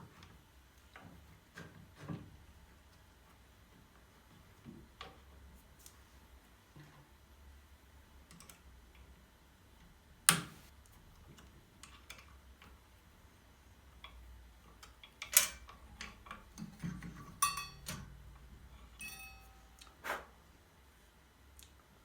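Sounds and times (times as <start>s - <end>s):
short ringing tone: 19.0s - 19.9s.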